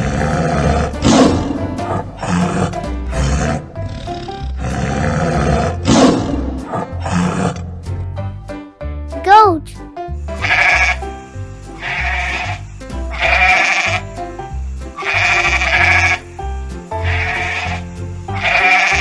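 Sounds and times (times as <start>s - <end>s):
tiger roaring: 0.0s - 7.7s
children's music with bass line: 7.7s - 19.0s.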